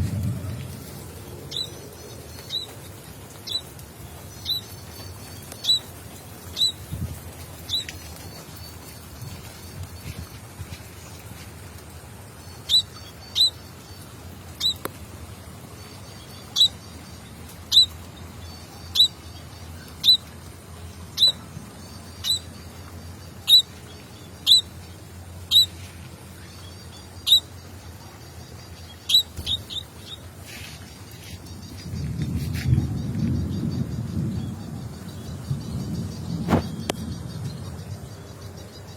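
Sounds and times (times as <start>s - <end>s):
low rumble: 0.0s - 5.3s
small bird chirping: 1.5s - 3.8s, 4.4s - 10.9s, 12.4s - 15.0s, 15.8s - 20.4s, 21.1s - 38.9s.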